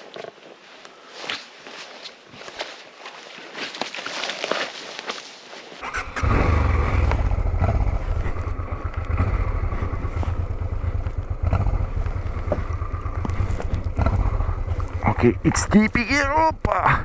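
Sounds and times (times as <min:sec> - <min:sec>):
motorcycle engine deep rumble: 0:05.8 - 0:17.0
motorcycle engine starting: 0:05.8 - 0:17.0.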